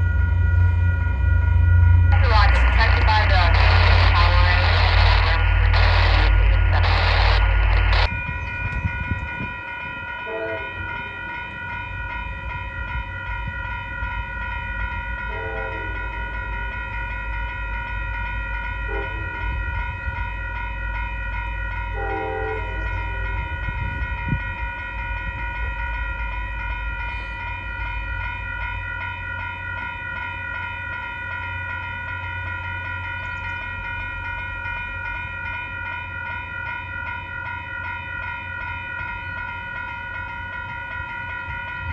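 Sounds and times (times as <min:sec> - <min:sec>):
railroad crossing bell ringing: 0:00.0 - 0:41.9
train rumbling past: 0:00.0 - 0:41.9
faint train horn: 0:10.2 - 0:10.8, 0:15.3 - 0:16.0, 0:18.9 - 0:19.5, 0:21.9 - 0:23.0.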